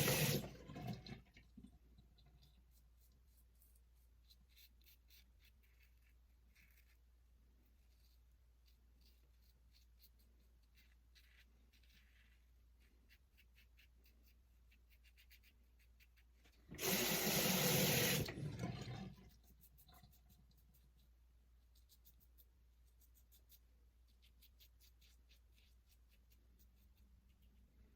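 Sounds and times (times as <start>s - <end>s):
tap running: 0.0s - 1.4s, 16.7s - 19.2s.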